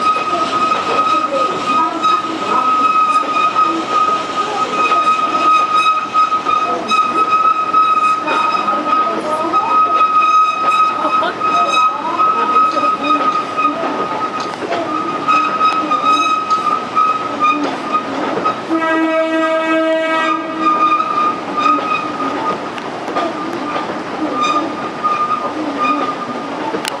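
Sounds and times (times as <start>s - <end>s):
train wheels squealing: 0.0s - 18.6s, 20.5s - 22.6s, 23.2s - 26.4s
train horn: 0.0s - 22.5s, 23.2s - 26.2s
clicks over rails: 21.5s - 27.0s.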